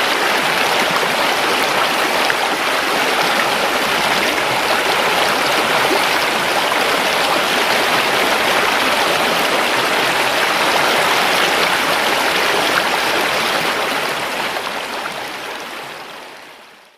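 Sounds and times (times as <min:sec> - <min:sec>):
river water rushing: 0:00.0 - 0:16.8.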